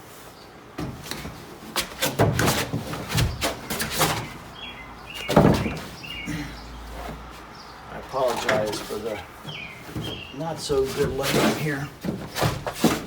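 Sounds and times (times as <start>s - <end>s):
bird chirping: 3.2s - 11.8s.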